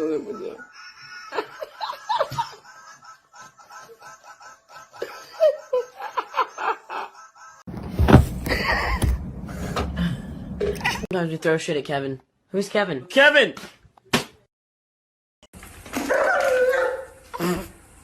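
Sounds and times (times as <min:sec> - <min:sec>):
laughter in quick bursts: 0:00.3 - 0:07.7.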